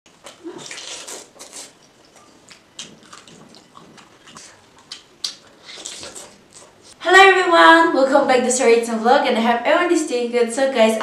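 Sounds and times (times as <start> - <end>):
wet chewing and lip smacking: 0.1 - 7.0.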